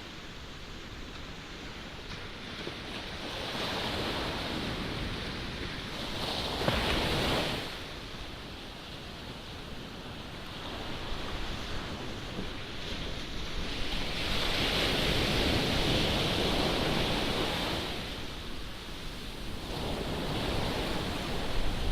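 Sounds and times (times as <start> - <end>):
ocean surf breaking: 0.0 - 21.9
wind buffeting microphone: 9.2 - 21.9.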